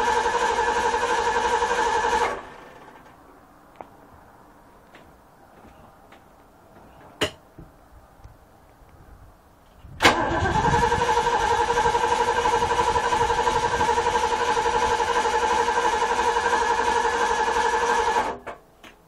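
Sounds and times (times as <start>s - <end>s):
boat engine starting and running: 10.0s - 18.4s.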